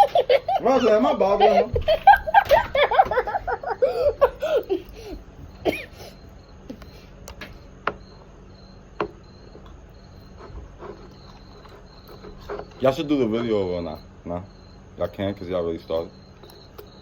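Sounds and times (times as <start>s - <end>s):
girl giggling: 0.0s - 6.9s.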